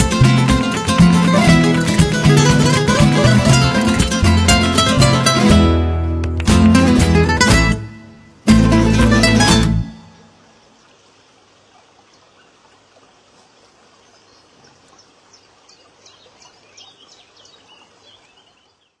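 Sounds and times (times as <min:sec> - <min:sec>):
faint outdoor ambience: 0:00.0 - 0:19.0
small bird chirping: 0:14.1 - 0:19.0.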